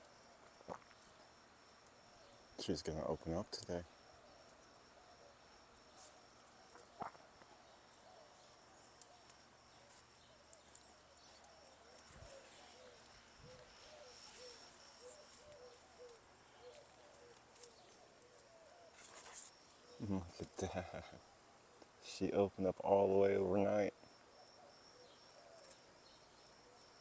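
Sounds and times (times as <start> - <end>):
insects trilling: 0.0 - 27.0
bird chirping: 2.1 - 20.8.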